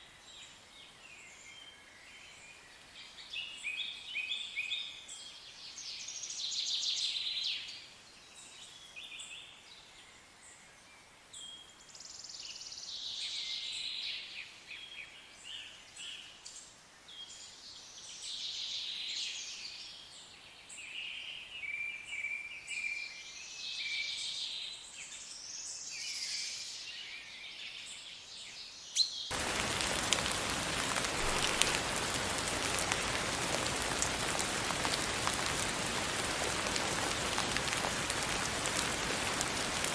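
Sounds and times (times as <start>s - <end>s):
rain falling: 29.3s - 39.9s.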